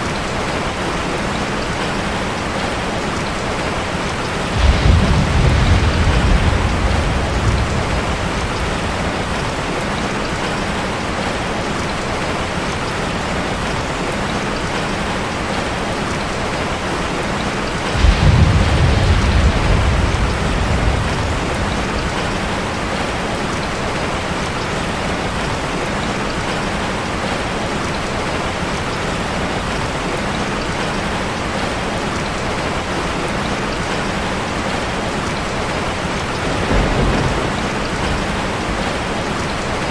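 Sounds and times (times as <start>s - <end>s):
rain pattering on a metal roof: 0.0s - 39.9s
deep rumble of thunder: 4.0s - 11.4s, 17.3s - 26.6s, 35.3s - 39.9s.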